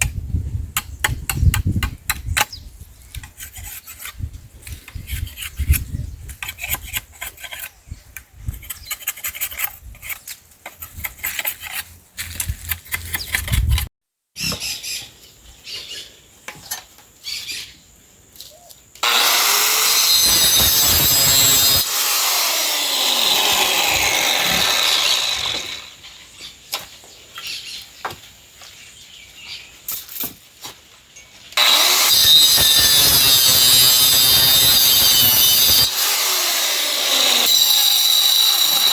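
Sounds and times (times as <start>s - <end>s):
rasping strokes on wood: 19.0s - 25.9s
power tool working wood: 19.0s - 26.0s, 31.6s - 38.9s.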